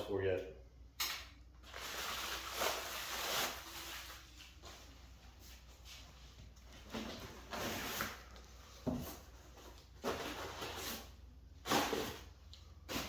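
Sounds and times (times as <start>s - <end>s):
packing material rustling: 1.6s - 4.8s.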